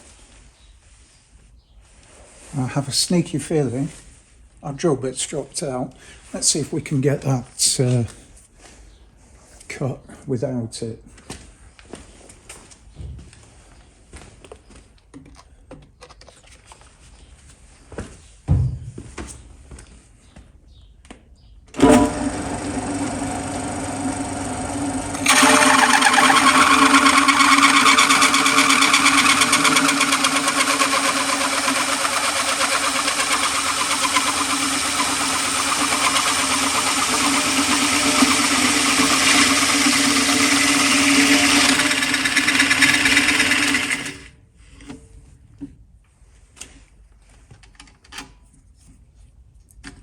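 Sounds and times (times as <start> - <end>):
cutter grinding steel plate: 21.8 - 44.3
motor humming: 21.8 - 44.3.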